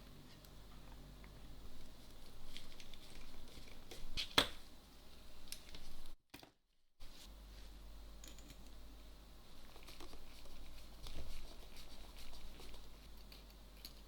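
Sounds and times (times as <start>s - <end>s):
small tools clicking and tapping: 13.2s - 14.0s.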